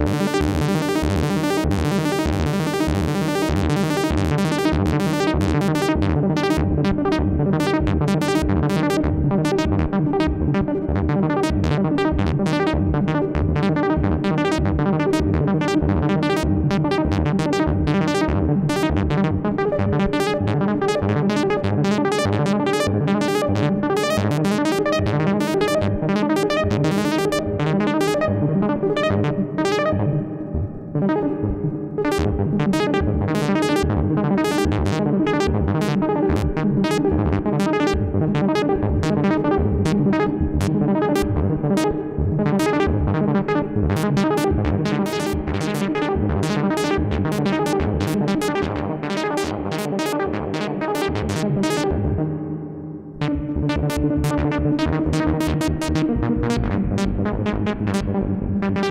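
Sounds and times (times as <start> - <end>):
synthesizer plucky notes: 14.5 - 34.8, 35.4 - 58.9.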